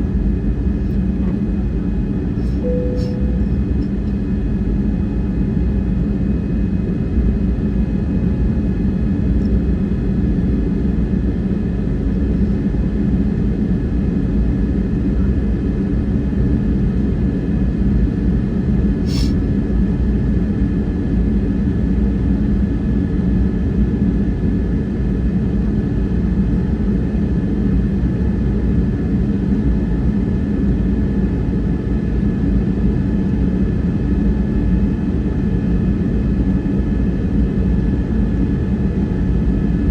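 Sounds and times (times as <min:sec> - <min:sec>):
faint constant whine: 0:00.0 - 0:09.8
aircraft cabin engine rumble: 0:00.0 - 0:39.9
short sharp click: 0:02.4 - 0:03.9.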